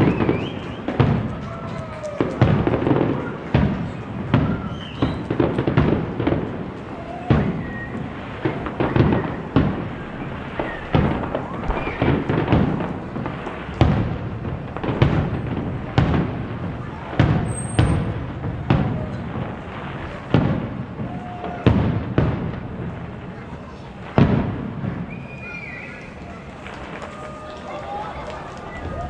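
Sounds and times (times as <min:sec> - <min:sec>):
firework shells bursting: 0:00.0 - 0:21.0.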